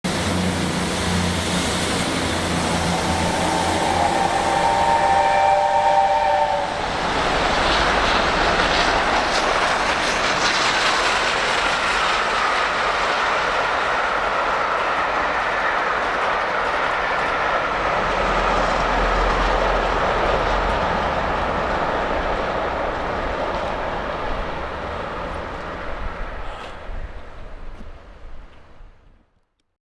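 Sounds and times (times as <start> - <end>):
train wheels rushing on rails: 0.1 - 29.2
train horn: 2.1 - 7.3.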